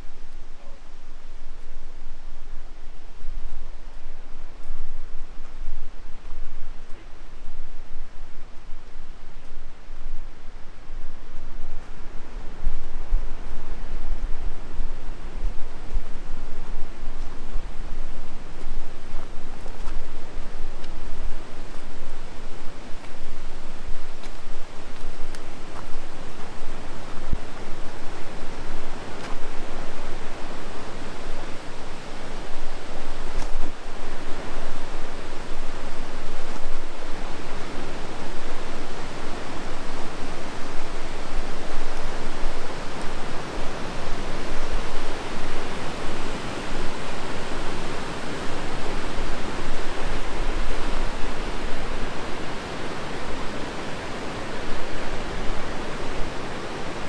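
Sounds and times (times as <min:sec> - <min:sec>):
rushing white water: 0:11.9 - 0:57.0.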